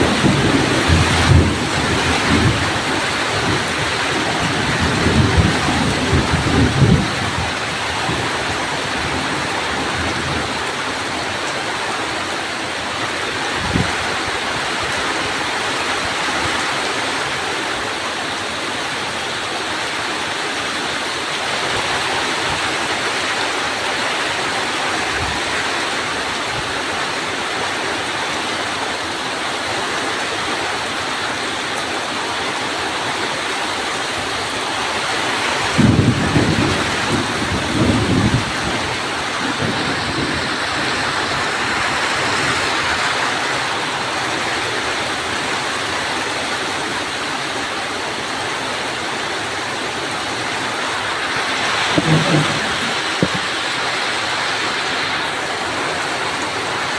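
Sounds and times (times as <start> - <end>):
low thunder rumble: 0.0 - 10.6, 35.6 - 42.2, 51.0 - 53.8
heavy rain pouring: 0.0 - 56.9
low thump: 51.9 - 53.5.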